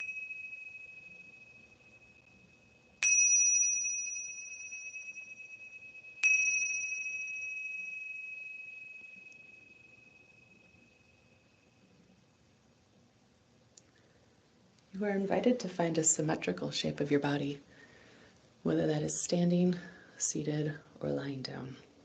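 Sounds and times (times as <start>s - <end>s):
meditation bell ringing: 0.0s - 11.9s.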